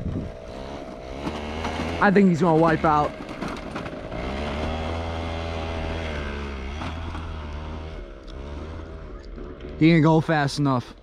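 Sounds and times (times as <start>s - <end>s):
moped engine running: 0.0s - 11.0s.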